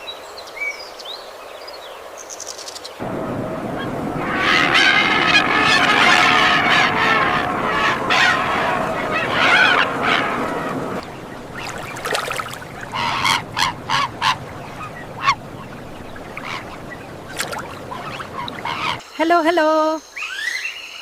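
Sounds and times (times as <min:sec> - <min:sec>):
birds honking: 0:03.0 - 0:19.0
short sharp bird calls: 0:03.1 - 0:19.0.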